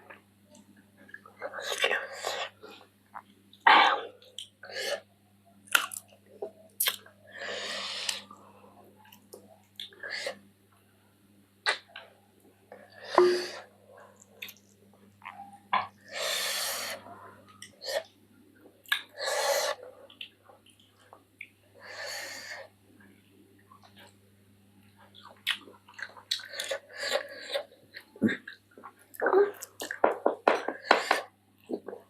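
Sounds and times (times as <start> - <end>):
person breathing: 7.3 - 8.9
chewing and smacking: 25.0 - 32.0.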